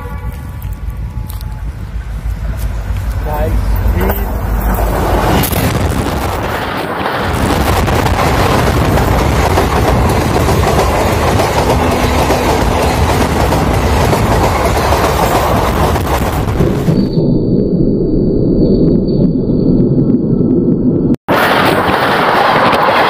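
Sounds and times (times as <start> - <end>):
train wheels rumbling on rails: 0.0 - 17.2.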